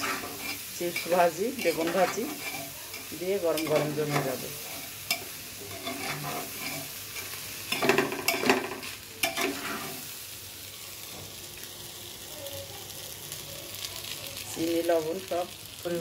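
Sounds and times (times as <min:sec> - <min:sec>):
spoon scraping a pot: 0:00.0 - 0:10.0
food sizzling in oil: 0:00.0 - 0:16.0.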